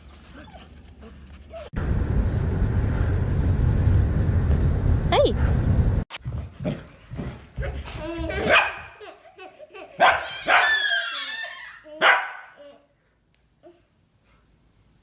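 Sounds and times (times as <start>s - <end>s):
dog barking: 8.4s - 8.9s, 10.0s - 10.9s, 12.0s - 12.6s.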